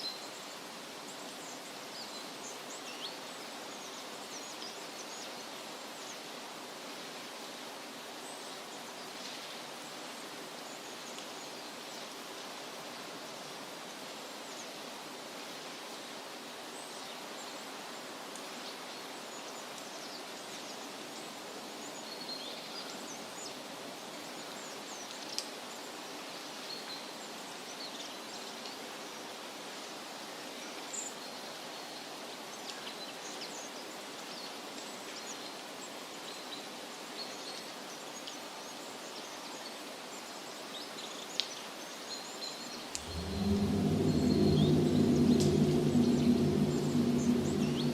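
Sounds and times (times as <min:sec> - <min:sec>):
steady rushing hiss: 0:43.0 - 0:47.9.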